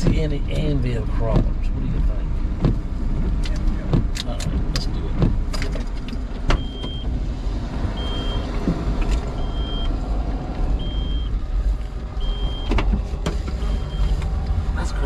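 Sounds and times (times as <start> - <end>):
low rumble: 0.0 - 15.0
car warning chime beeping: 6.6 - 7.1, 8.0 - 8.6, 9.3 - 10.0, 10.8 - 11.4, 12.2 - 12.8, 13.6 - 14.2.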